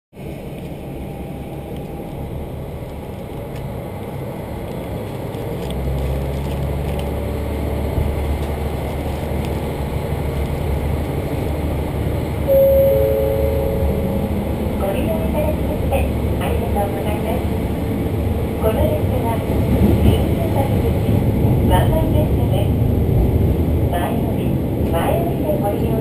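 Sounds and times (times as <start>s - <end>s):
train rumble inside carriage: 0.2s - 26.0s
two-note tone: 12.5s - 14.7s.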